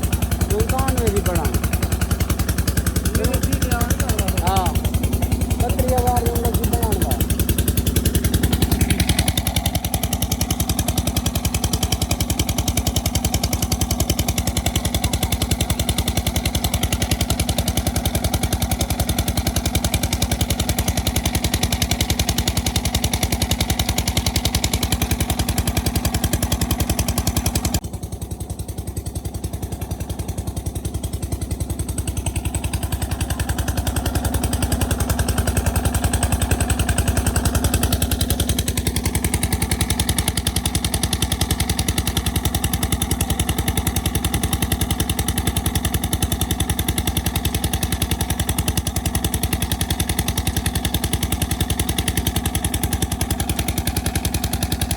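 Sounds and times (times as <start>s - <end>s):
oil engine firing beat: 0.0s - 12.4s.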